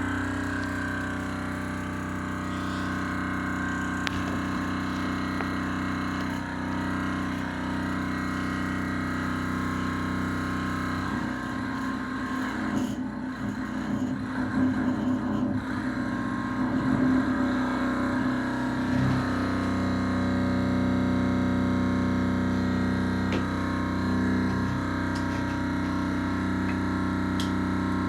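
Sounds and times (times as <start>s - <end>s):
thermoacoustic engine humming: 0.0s - 28.0s.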